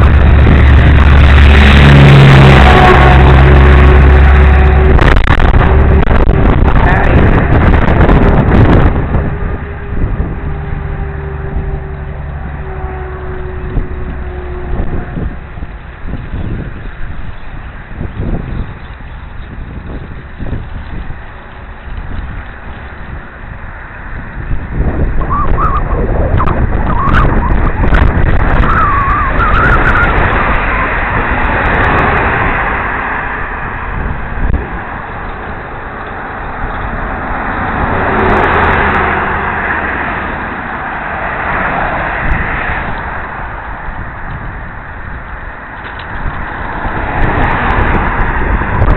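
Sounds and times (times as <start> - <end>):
wind buffeting microphone: 0.0 - 48.9
wavering whistle: 25.2 - 31.0.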